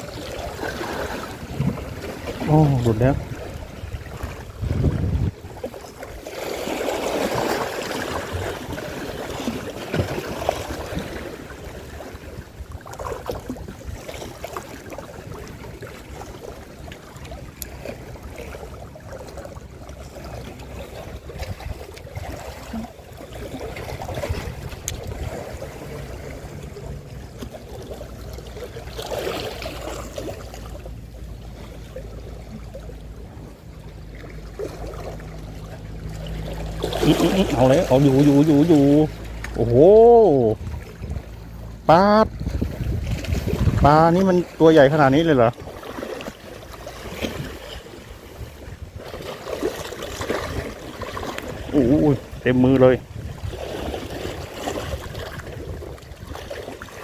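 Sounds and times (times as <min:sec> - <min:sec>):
wind on microphone: 0:00.0 - 0:06.3, 0:20.9 - 0:26.6, 0:40.4 - 0:41.4, 0:42.2 - 0:44.2, 0:50.2 - 0:56.7
sea water washing: 0:00.0 - 0:57.0.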